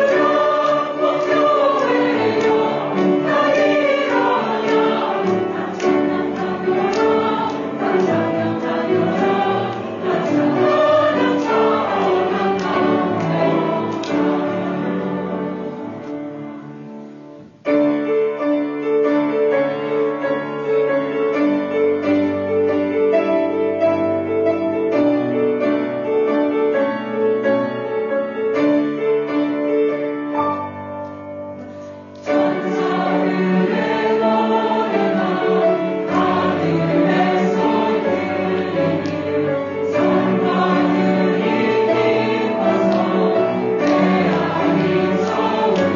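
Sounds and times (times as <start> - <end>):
choir singing a hymn: 0.0 - 16.5, 31.6 - 45.9
piano accompaniment: 0.0 - 45.9.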